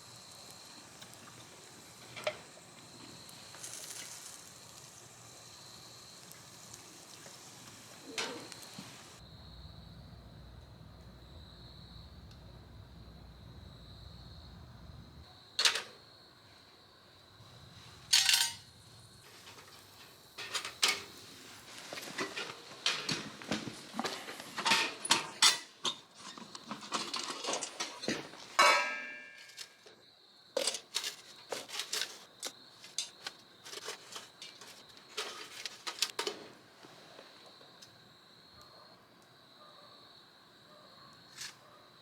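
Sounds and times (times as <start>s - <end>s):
metal parts clinking: 18.1s - 18.7s
ringing metal clank: 28.6s - 29.6s.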